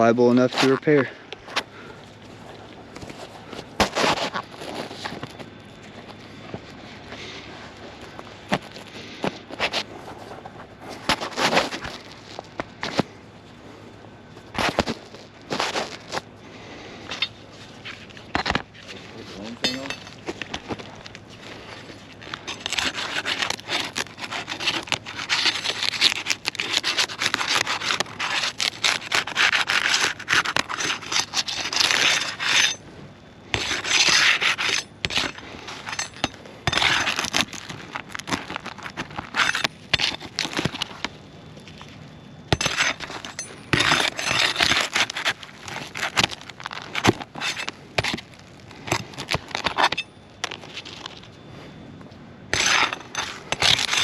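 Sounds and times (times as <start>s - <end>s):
roof shingles being scraped loose: 21.5s - 32.8s, 33.6s - 41.0s, 42.5s - 50.0s, 52.5s - 54.0s.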